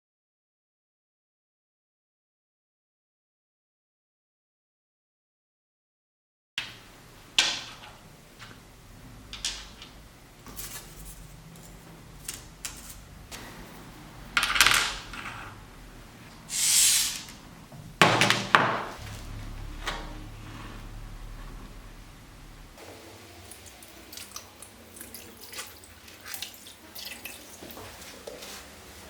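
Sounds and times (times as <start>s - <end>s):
short hiss: 16.5s - 17.3s.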